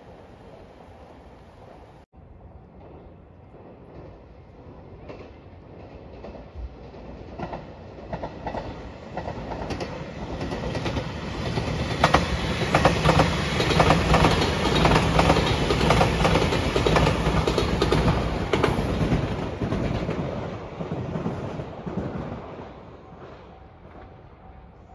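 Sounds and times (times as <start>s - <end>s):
train passing: 0.0s - 24.9s
wheels clacking over rail joints: 2.7s - 22.7s.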